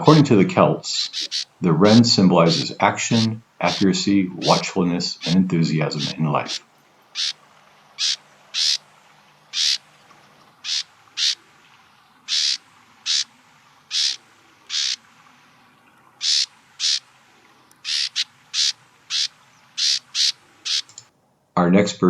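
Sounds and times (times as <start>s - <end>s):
wren giving harsh calls: 0.0s - 7.4s, 8.0s - 8.8s, 9.5s - 9.9s, 10.6s - 11.5s, 12.2s - 13.3s, 13.9s - 15.0s, 16.2s - 17.1s, 17.7s - 21.1s.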